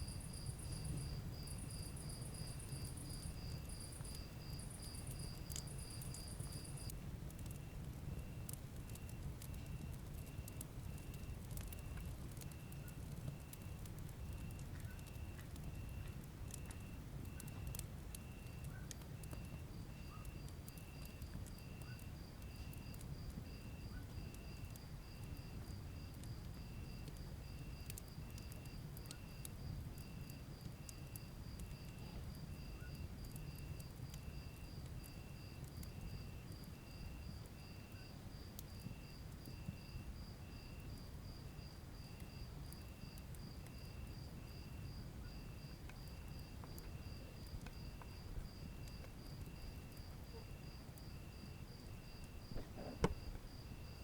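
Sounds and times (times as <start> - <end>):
high crickets chirping: 0.0 - 6.9, 18.2 - 54.0
low cricket chirping: 0.0 - 54.0
wood fire burning: 0.0 - 54.0.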